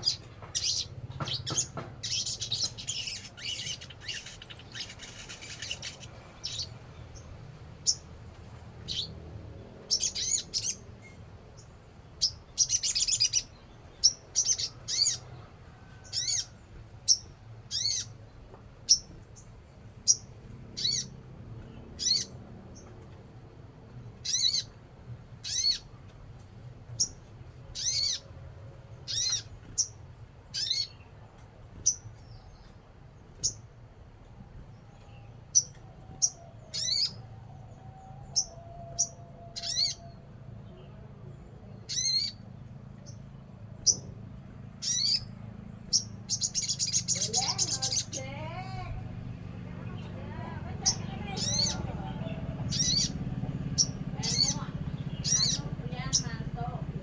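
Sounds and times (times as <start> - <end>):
songbird chirping: 0.0 - 57.0.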